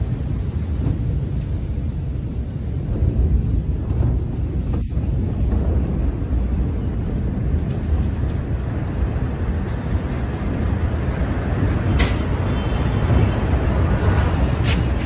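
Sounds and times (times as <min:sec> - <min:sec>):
low rumbling noise: 0:00.0 - 0:15.0.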